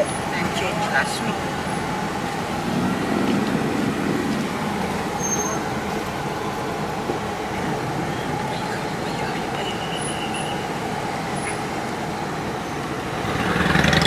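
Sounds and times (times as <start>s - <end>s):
road noise: 0.0s - 14.0s
vehicle engine running: 0.0s - 14.0s.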